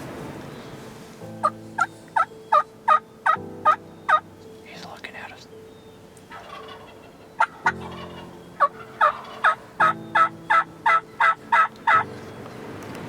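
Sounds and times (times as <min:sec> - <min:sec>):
wild turkey yelping: 0:01.4 - 0:04.2, 0:06.0 - 0:12.0.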